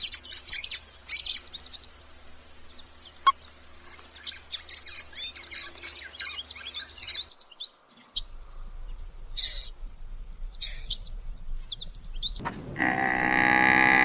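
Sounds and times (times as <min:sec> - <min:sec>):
small birds chirping: 0:00.0 - 0:14.0
long drawn-out animal call: 0:12.8 - 0:14.0.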